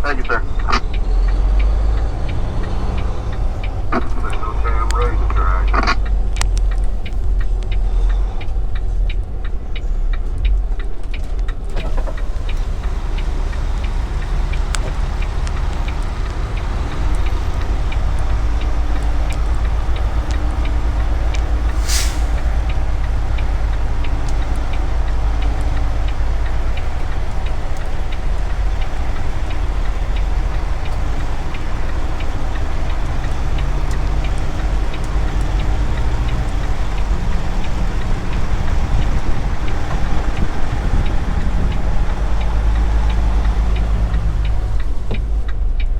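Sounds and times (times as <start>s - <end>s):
diesel truck engine running: 0.0s - 45.9s
air hiss: 21.6s - 22.6s.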